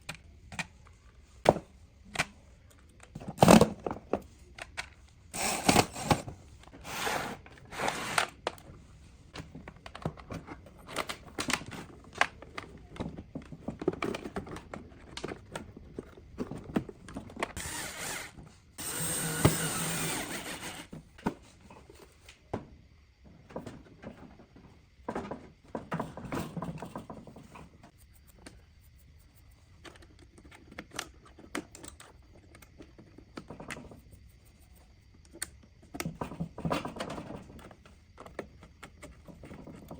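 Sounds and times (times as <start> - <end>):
small power tool running: 17.6 - 20.9.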